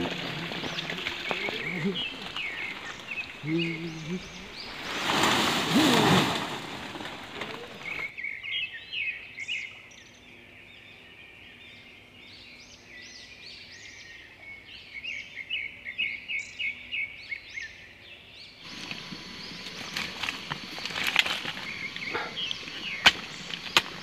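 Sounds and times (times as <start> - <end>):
birds chirping: 0.0 - 24.0
loud hiss of noise: 18.6 - 24.0.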